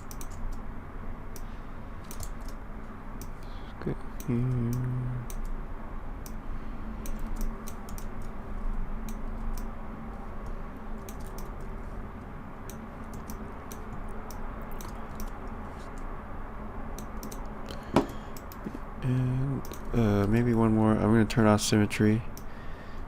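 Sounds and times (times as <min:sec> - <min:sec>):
keyboard and mouse clicking: 0:00.0 - 0:00.6, 0:01.3 - 0:02.6, 0:04.2 - 0:05.6, 0:07.0 - 0:08.4, 0:09.0 - 0:09.7, 0:10.4 - 0:11.7, 0:12.7 - 0:16.1, 0:17.0 - 0:18.7, 0:19.6 - 0:20.3
steady low hum: 0:00.0 - 0:23.0.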